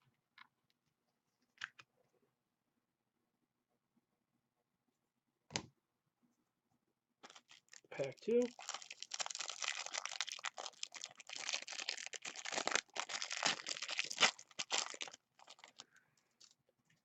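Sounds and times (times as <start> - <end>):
wrapper being torn and crinkled: 7.2 - 16.5.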